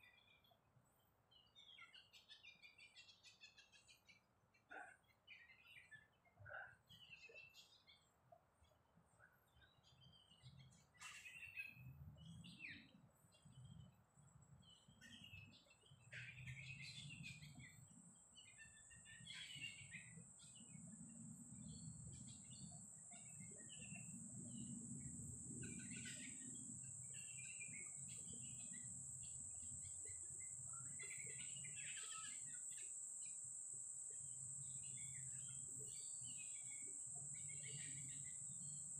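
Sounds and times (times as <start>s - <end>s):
birds chirping: 14.6s - 38.9s
high-pitched insect drone: 18.4s - 38.9s.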